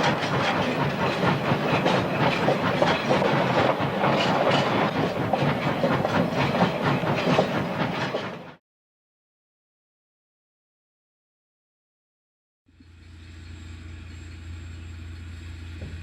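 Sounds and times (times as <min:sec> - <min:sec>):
train wheels clattering over rail joints: 0:00.0 - 0:08.6.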